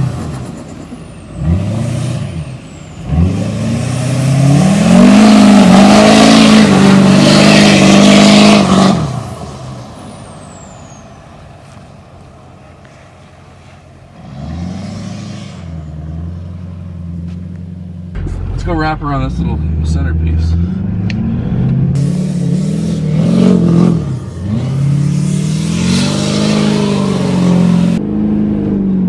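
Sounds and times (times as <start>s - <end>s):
pickup truck engine revving: 1.2s - 10.9s, 14.2s - 28.5s
heavy rushing noise: 18.1s - 28.0s.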